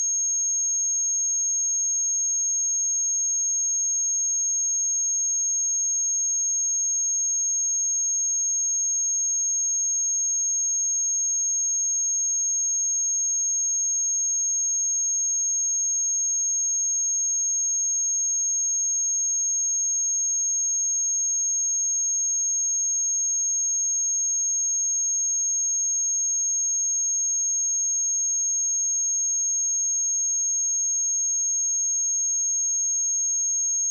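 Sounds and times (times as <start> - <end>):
high-pitched sine test tone: 21.8 - 33.9.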